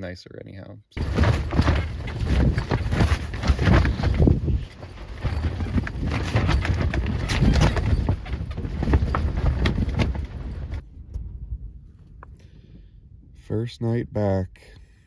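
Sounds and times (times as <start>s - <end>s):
flapping knocks: 1.0s - 10.8s
wind rumbling on microphone: 1.0s - 13.6s.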